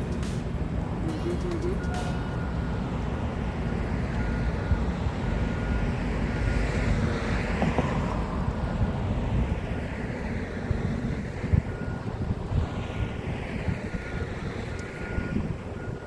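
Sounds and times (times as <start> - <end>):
steady low rumble: 0.0 - 4.1.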